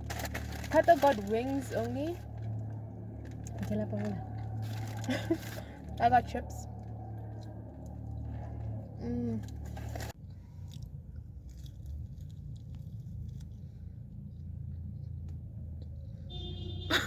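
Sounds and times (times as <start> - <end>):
low steady hum: 0.0 - 17.0
person chewing crunchy food: 6.8 - 13.6.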